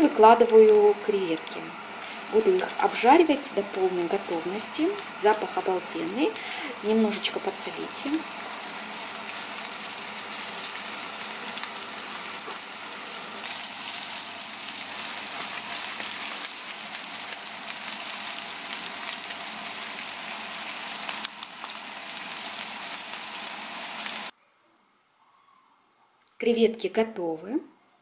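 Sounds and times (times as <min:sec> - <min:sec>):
shrimp sizzling in oil: 0:00.0 - 0:24.3.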